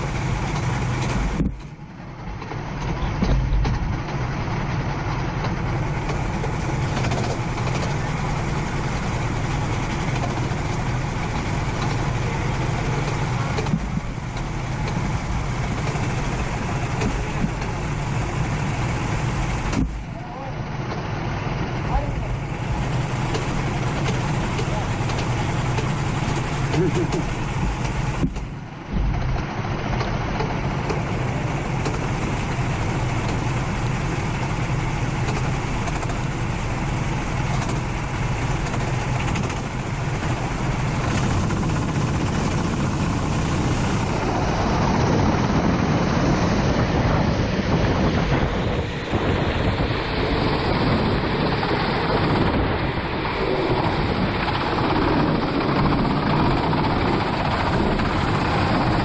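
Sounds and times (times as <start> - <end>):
kart engine running: 0.0 - 59.0
wind and rain spray hiss: 22.1 - 59.0.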